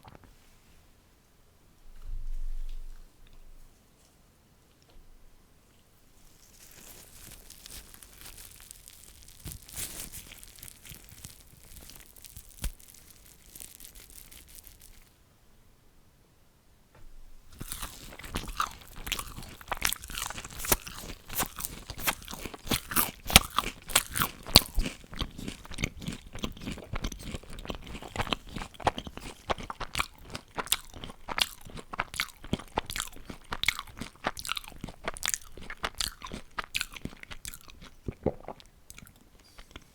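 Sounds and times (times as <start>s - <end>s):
soft chewing: 1.9s - 5.0s, 5.6s - 15.1s, 17.5s - 39.9s
crunching of crisp fried food: 6.1s - 15.2s, 17.4s - 39.9s.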